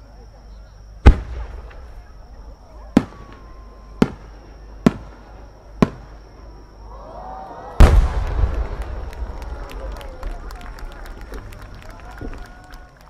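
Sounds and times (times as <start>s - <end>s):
firework shells bursting: 1.0s - 6.2s, 7.8s - 12.8s.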